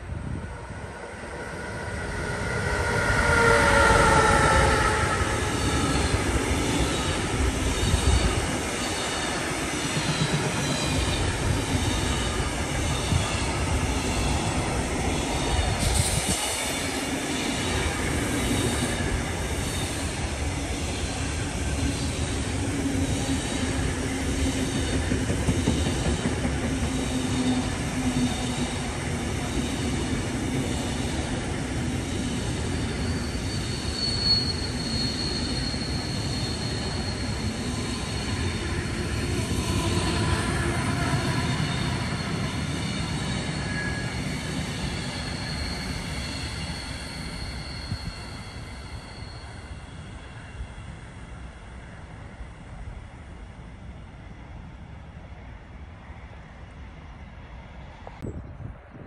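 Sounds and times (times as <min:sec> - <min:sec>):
train whine: 0:00.0 - 0:59.0
train wheels rumbling on rails: 0:00.1 - 0:51.3
rhythmic clicking of train cars: 0:05.2 - 0:50.4.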